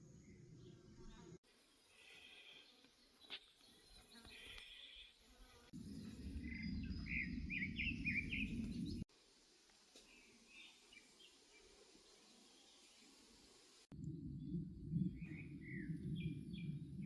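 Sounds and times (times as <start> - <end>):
low rumbling noise: 5.8 - 9.0, 13.9 - 17.0
birds chirping and calling: 5.9 - 9.0.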